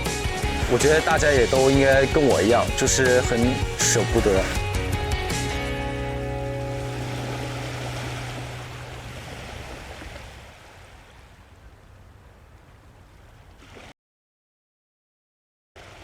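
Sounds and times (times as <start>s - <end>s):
water noise: 0.0s - 13.9s
held music chord: 0.2s - 8.9s.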